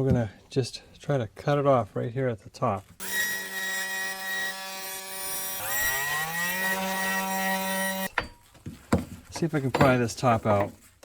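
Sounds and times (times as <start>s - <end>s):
power tool motor cutting plastic: 3.0s - 8.1s.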